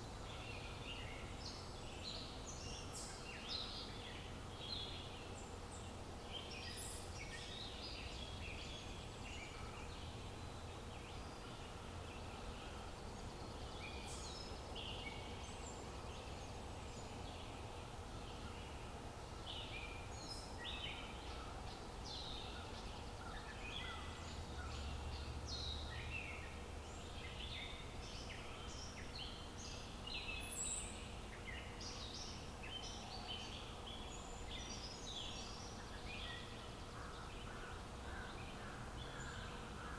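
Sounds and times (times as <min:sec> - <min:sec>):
birds chirping and singing: 0:19.5 - 0:39.9.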